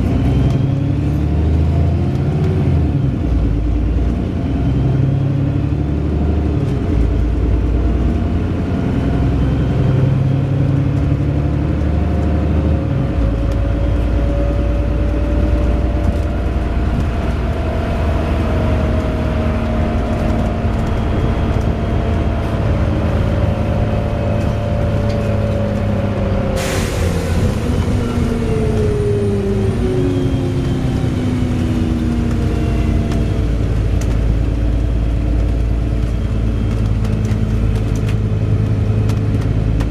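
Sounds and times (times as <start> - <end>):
bus engine: 0.0 - 39.9
sharp air hiss: 26.6 - 27.6.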